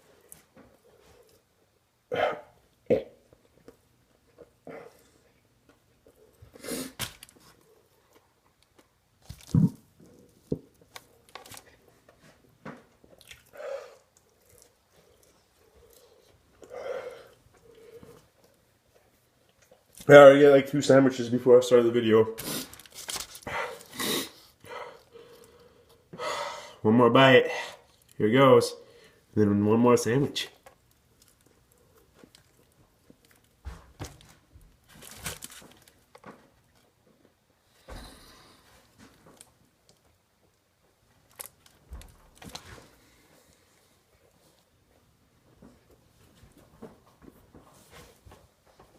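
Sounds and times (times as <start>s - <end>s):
man chewing food: 2.7s - 20.0s, 22.6s - 26.2s, 30.6s - 33.6s
chewing food: 12.9s - 16.7s.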